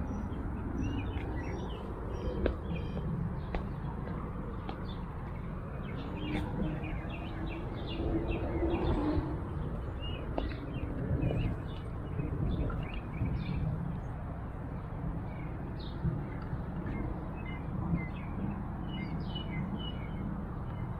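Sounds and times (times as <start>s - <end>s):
small birds chirping: 0.0s - 14.2s.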